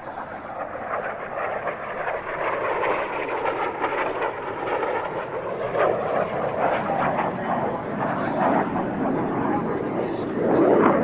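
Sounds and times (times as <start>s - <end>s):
jet flying past: 0.0s - 11.0s.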